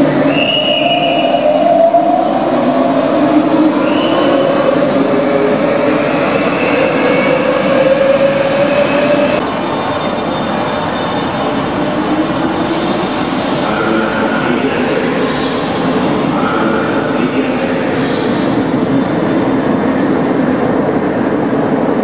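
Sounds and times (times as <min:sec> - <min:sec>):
high wheel squeaks: 0:09.4 - 0:20.4.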